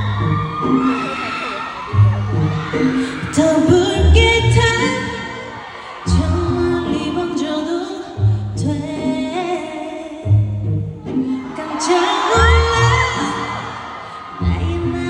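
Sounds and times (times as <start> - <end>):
backing track with deep bass: 0.0 - 5.3
woman singing: 3.0 - 5.5, 6.1 - 10.6, 11.2 - 13.8, 14.4 - 15.0.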